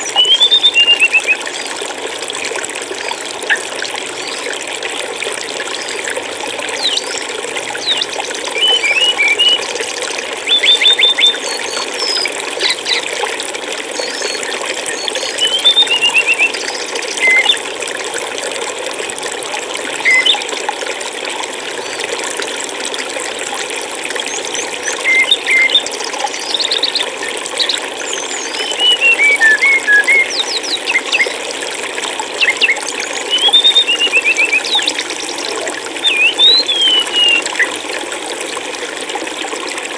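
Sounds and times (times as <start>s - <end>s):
stream water flowing: 0.0s - 39.9s
songbirds chirping: 5.7s - 9.6s, 10.4s - 13.1s, 14.0s - 17.6s, 24.3s - 31.4s, 32.3s - 37.8s.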